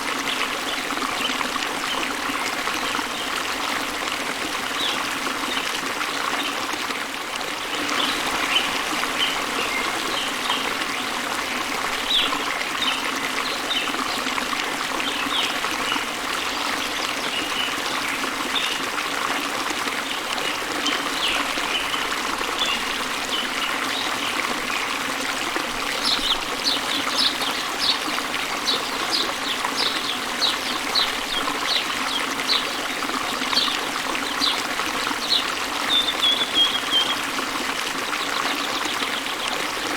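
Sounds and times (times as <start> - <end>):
waterfall pouring into river: 0.0 - 39.9
birds chirping: 25.9 - 37.4.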